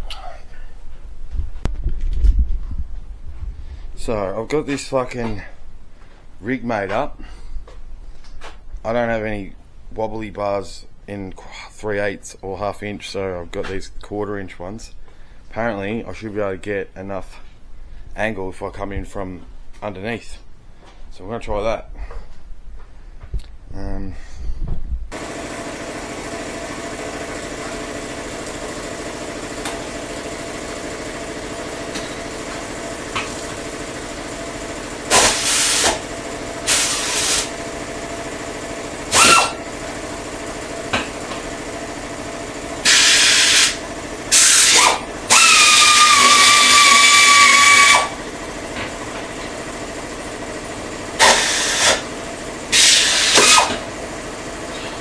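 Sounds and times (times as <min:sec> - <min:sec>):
power ratchet whirring: 0:25.1 - 0:55.0.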